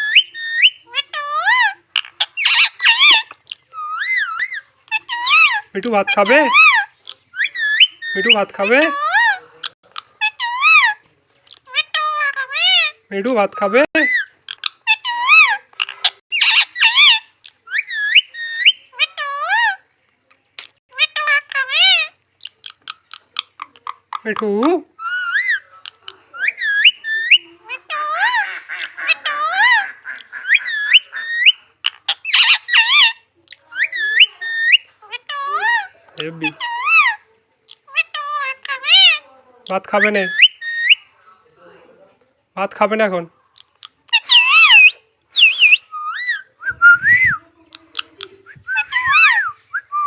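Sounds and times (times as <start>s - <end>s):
parakeet squawking and chattering: 0.0s - 19.8s, 20.6s - 41.1s, 43.6s - 46.5s, 47.7s - 49.5s
parakeet warbling whistles: 44.2s - 47.4s.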